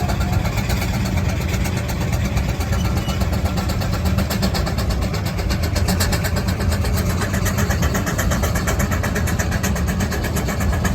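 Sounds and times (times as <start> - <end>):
low engine rumble: 0.0 - 10.9
steam engine exhaust beating: 0.0 - 10.9.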